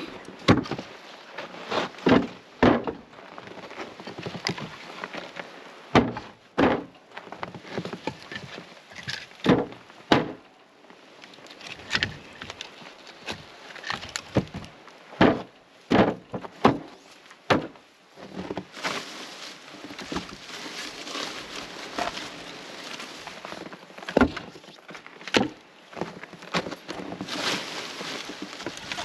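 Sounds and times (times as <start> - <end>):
rustling and scuffing: 0.0 - 6.4, 11.2 - 29.0
firewood knocking: 0.4 - 0.8, 5.9 - 6.9, 9.4 - 10.4, 13.2 - 16.9.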